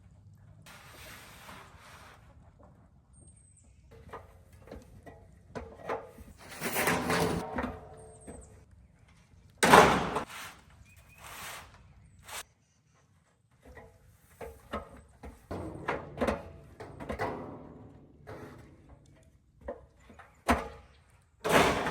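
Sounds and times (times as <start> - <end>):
scraping rub: 0.7 - 2.6, 6.3 - 7.4, 10.2 - 12.5.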